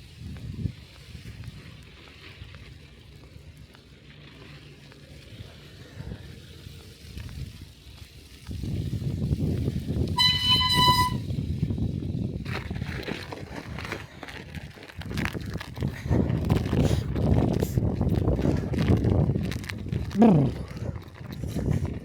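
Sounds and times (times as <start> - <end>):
high horn toot: 10.1 - 11.3.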